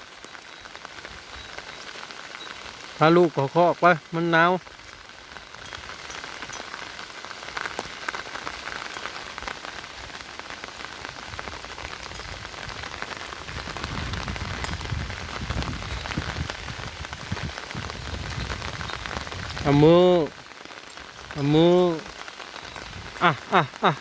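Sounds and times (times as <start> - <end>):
rain patter: 0.0 - 24.0.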